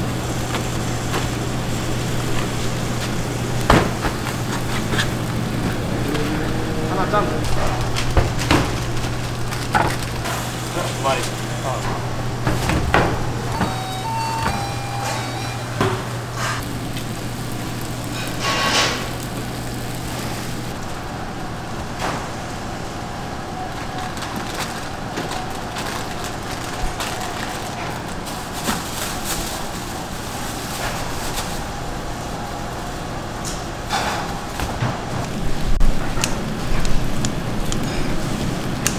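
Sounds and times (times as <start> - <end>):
machine hum: 0.0 - 38.9
kitchen knocks and clatter: 7.5 - 10.4.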